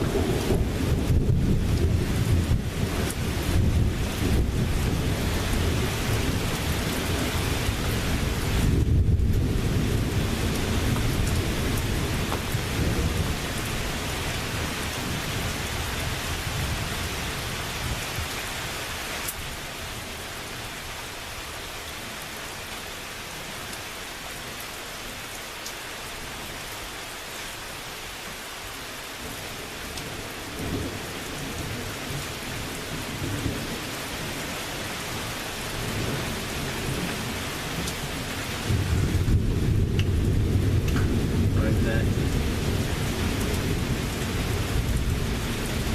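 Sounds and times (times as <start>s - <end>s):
thunder rumbling: 0.0s - 18.3s, 35.2s - 45.9s
steady rain: 0.0s - 45.9s.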